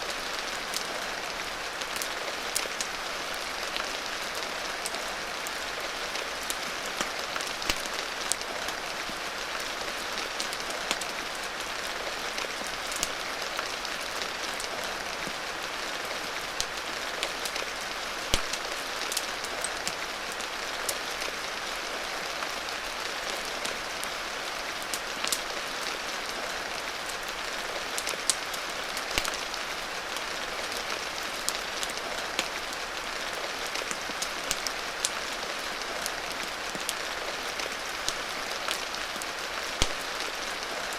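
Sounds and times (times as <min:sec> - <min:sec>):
steady rain hiss: 0:00.0 - 0:40.9
wood fire popping and crackling: 0:06.2 - 0:08.8, 0:12.3 - 0:15.4, 0:16.6 - 0:20.1, 0:27.9 - 0:40.9.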